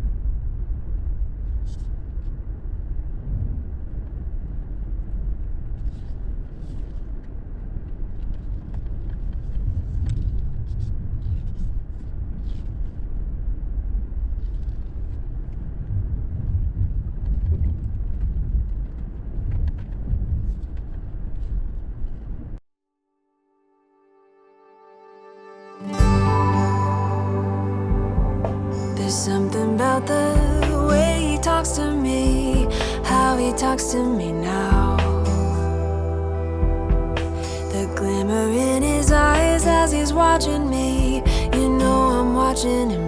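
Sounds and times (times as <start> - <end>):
car driving rumble: 26.0 - 43.0.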